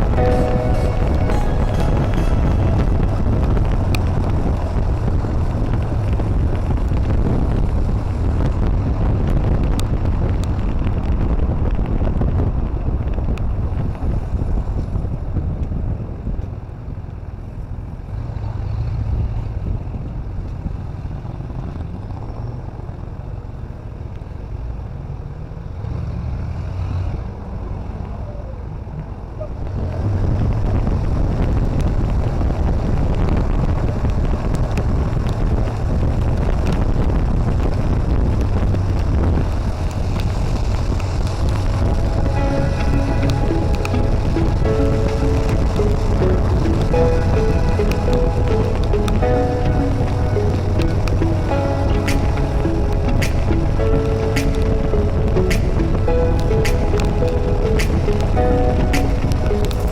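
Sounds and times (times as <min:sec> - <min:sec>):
low rumble: 0:00.0 - 0:16.3, 0:30.7 - 0:59.9
wind noise on microphone: 0:00.0 - 0:59.9.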